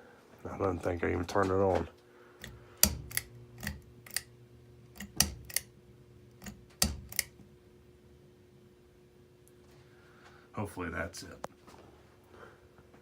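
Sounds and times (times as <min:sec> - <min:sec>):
person speaking: 0:00.4 - 0:02.0
pull-chain switch clicking: 0:02.4 - 0:04.3, 0:04.9 - 0:05.7, 0:06.4 - 0:07.4.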